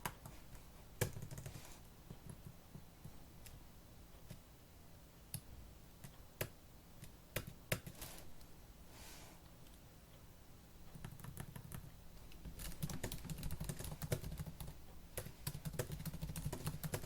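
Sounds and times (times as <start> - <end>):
laptop keyboard keystrokes: 1.0 - 3.6, 6.1 - 8.1, 10.9 - 17.0.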